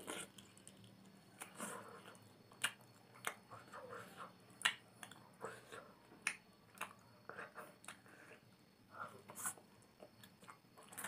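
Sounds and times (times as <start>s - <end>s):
soft chewing: 0.0s - 11.0s
wet mouth smacks and clicks: 2.5s - 3.4s, 4.6s - 5.2s, 6.2s - 7.0s.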